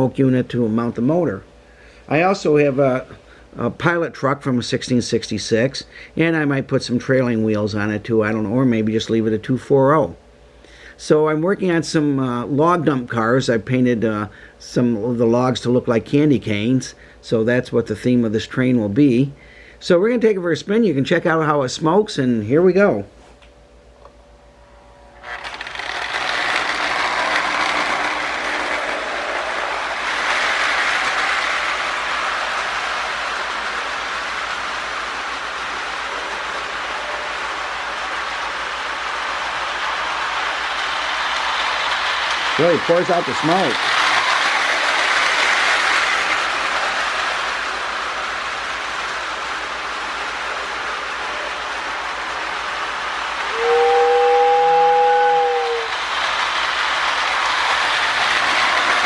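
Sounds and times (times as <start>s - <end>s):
toy train motor whirring: 25.1s - 54.4s, 55.3s - 59.0s
toy train wheel clatter: 25.2s - 53.5s, 55.7s - 59.0s.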